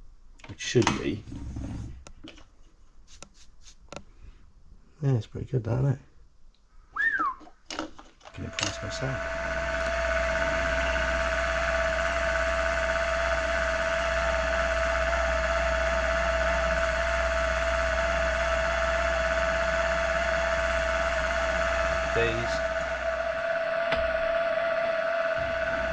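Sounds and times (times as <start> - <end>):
milling machine running: 8.4 - 25.9.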